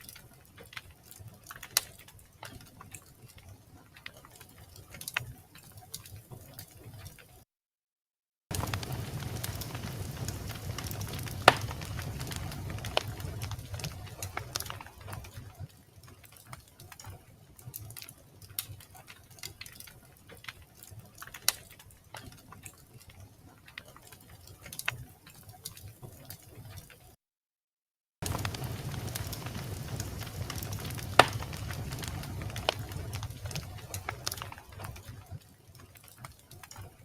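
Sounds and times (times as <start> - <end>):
log fire crackling and popping: 0.0 - 7.3, 8.5 - 27.0, 28.2 - 37.0
low rumble of flame: 8.5 - 15.7, 28.2 - 35.4.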